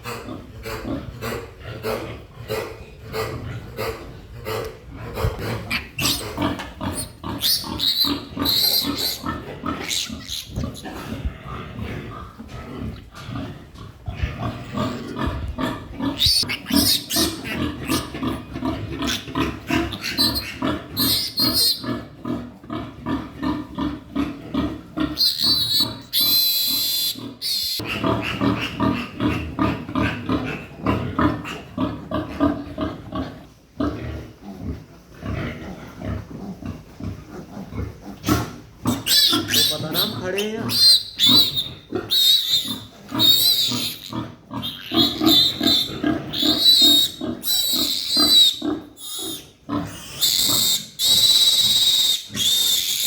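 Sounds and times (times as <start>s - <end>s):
pigs grunting: 0.0s - 53.0s
loud high pig squeal: 5.4s - 11.1s, 16.0s - 22.1s, 25.0s - 30.7s, 38.2s - 53.0s.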